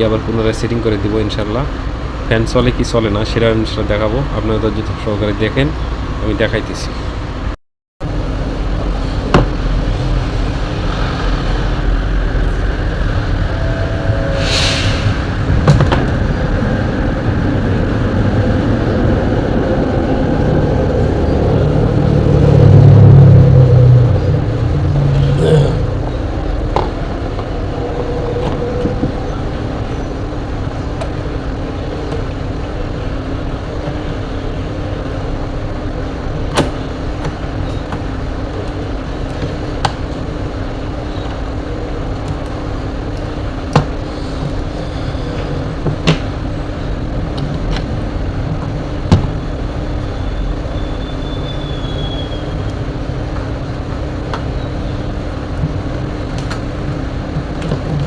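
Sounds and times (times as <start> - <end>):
low rumble with hum: 7.2 - 43.7.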